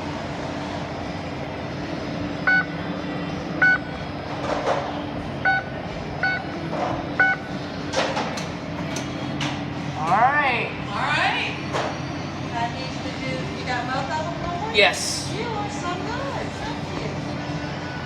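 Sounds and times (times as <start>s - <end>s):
kitchen equipment humming: 0.0s - 18.0s
oven control panel beeps: 2.5s - 2.8s, 3.6s - 3.9s, 5.4s - 7.6s.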